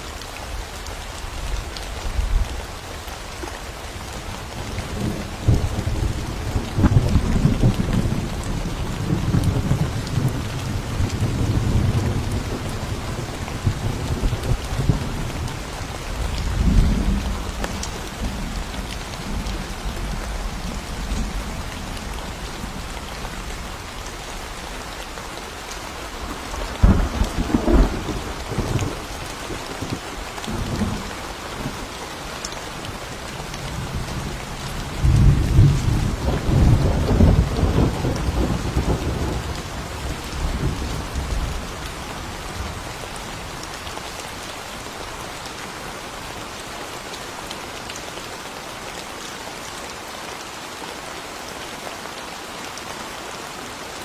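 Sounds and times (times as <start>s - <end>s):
steady rain: 0.0s - 54.0s
thunder rumbling: 4.6s - 24.0s, 26.2s - 31.8s, 32.9s - 43.0s.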